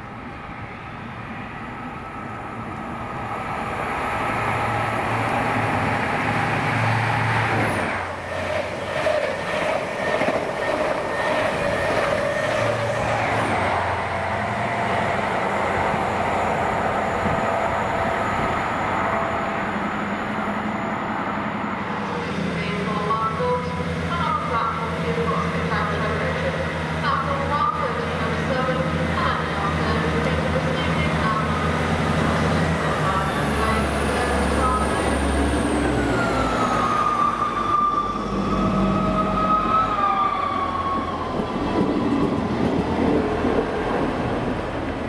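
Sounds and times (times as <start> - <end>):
train rumbling: 0.0 - 45.0.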